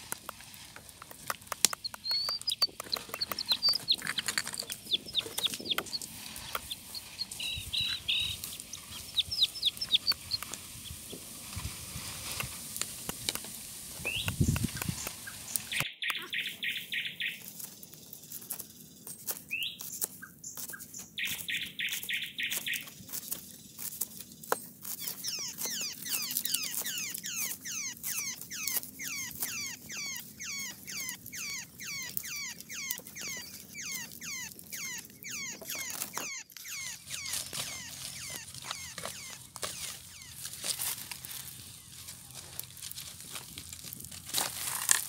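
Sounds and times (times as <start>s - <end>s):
bird buzzing trills: 1.6s - 11.2s, 25.0s - 40.7s
descending whistled bird notes: 14.0s - 14.6s, 25.2s - 40.3s.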